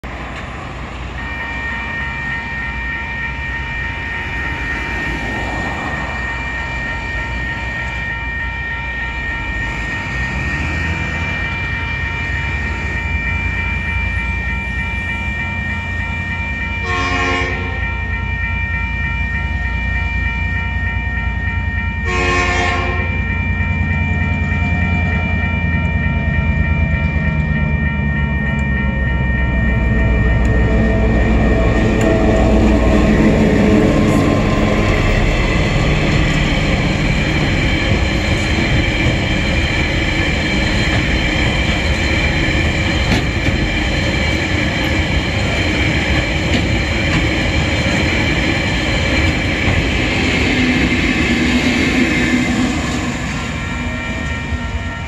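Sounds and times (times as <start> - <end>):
level crossing warning bells: 0.0 - 55.0
train horn blasts: 16.6 - 18.0, 22.0 - 23.3
diesel locomotive rumble: 22.0 - 55.0.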